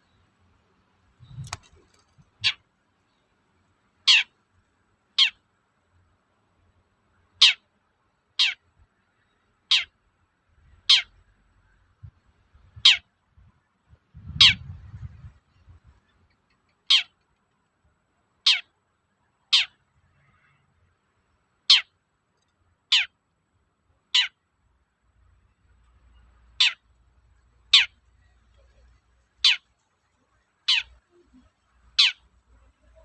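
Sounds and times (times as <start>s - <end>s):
shrike calling: 15.6s - 17.2s, 22.9s - 23.2s, 26.5s - 26.9s, 27.6s - 29.7s, 30.5s - 33.0s.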